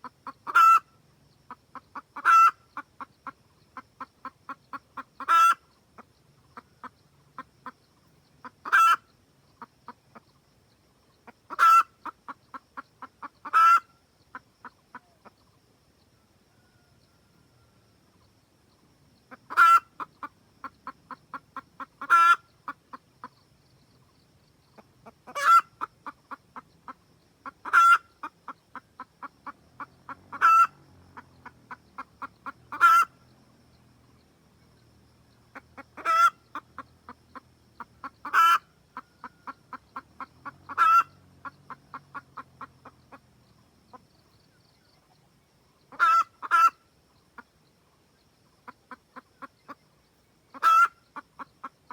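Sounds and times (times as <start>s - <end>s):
hen cackling and squawking: 0.0s - 0.9s, 1.5s - 7.8s, 8.4s - 10.3s, 11.2s - 15.4s, 19.3s - 23.4s, 24.7s - 33.4s, 35.5s - 44.2s, 45.9s - 47.5s, 48.6s - 49.8s, 50.5s - 51.9s.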